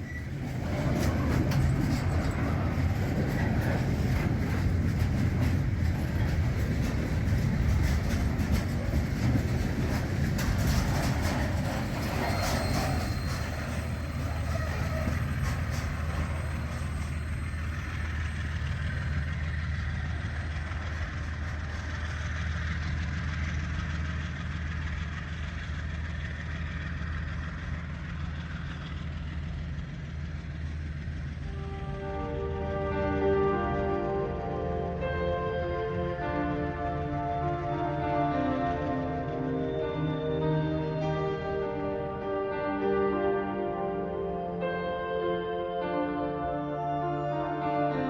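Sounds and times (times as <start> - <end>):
train wheels clicking on rails: 0.0 - 32.4
diesel train engine drone: 0.0 - 48.0.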